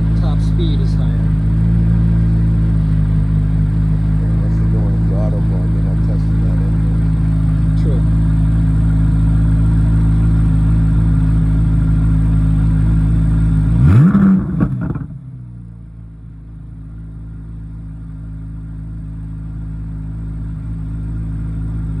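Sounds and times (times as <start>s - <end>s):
car engine idling: 0.0s - 22.0s
engine revving with pops: 13.7s - 15.2s.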